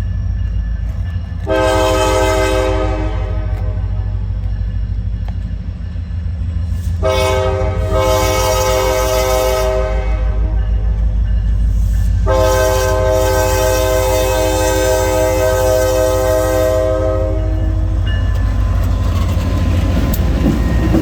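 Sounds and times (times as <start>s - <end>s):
diesel locomotive rumble: 0.0s - 21.0s
locomotive horn blast: 1.5s - 4.2s, 7.0s - 10.8s, 12.2s - 18.1s.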